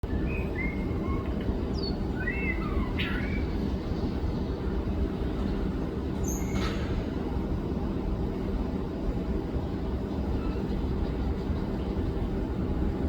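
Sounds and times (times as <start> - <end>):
bird whistled song: 0.0 - 3.7, 6.2 - 6.6.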